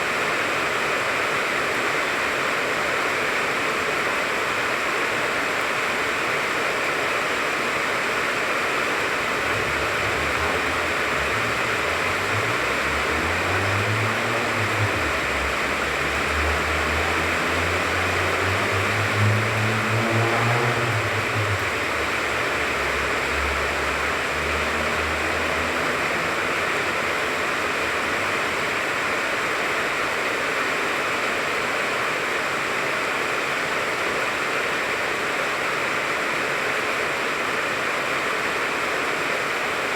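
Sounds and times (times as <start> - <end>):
rain pattering on leaves: 0.0 - 35.2
passing vehicle engine hum: 8.0 - 30.2.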